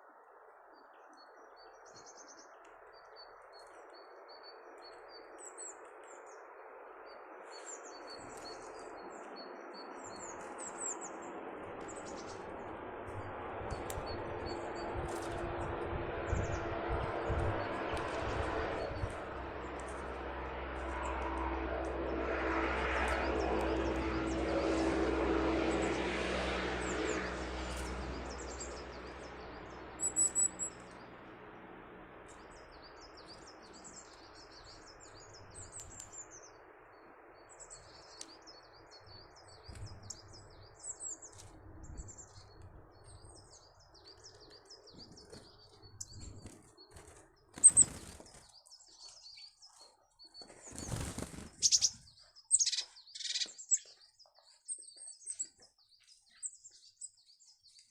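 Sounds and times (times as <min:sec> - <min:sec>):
small birds chirping: 0:00.0 - 0:57.9
aircraft drone: 0:02.5 - 0:49.4, 0:50.6 - 0:54.0
wings fluttering: 0:07.4 - 0:31.4, 0:41.1 - 0:54.0.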